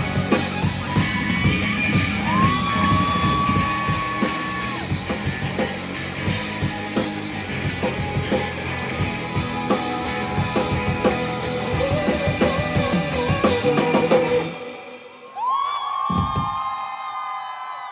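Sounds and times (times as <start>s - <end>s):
audience cheering and screaming: 0.0s - 6.4s, 13.5s - 17.9s
drum kit: 0.0s - 15.2s
live rock band music: 0.0s - 15.3s
person singing: 11.6s - 15.4s.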